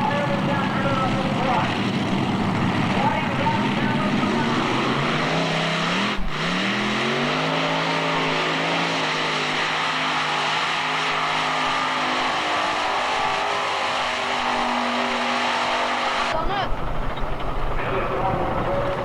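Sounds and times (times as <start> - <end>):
tractor engine roaring under load: 0.0 - 19.0.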